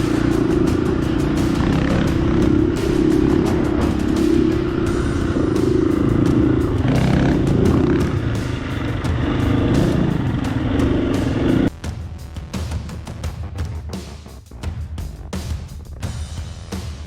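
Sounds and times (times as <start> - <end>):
dirt bike engine running: 0.0 - 11.7.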